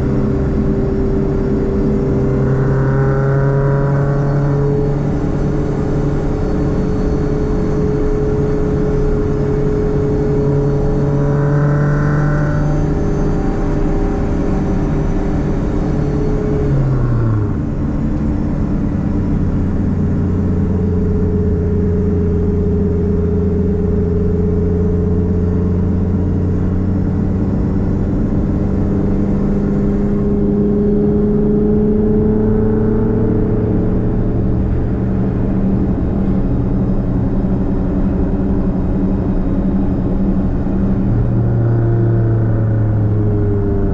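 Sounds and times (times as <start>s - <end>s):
car engine and exhaust droning: 0.0s - 43.9s.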